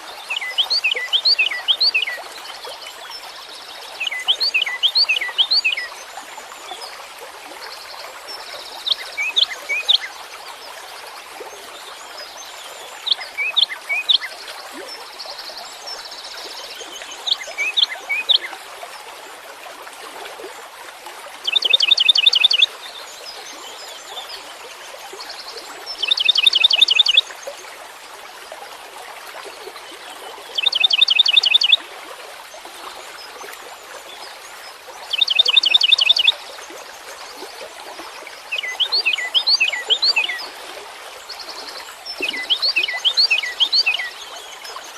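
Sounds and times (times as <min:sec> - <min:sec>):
songbird singing: 0:00.2 - 0:02.7, 0:03.9 - 0:06.0, 0:21.5 - 0:22.7, 0:25.9 - 0:27.3, 0:30.5 - 0:31.8, 0:35.0 - 0:36.4, 0:38.4 - 0:40.5, 0:41.3 - 0:44.9.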